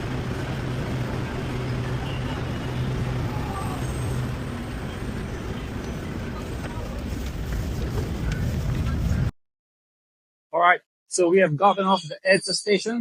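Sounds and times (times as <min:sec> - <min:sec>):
train motor hum: 0:00.0 - 0:09.3
train rumbling: 0:00.0 - 0:09.3.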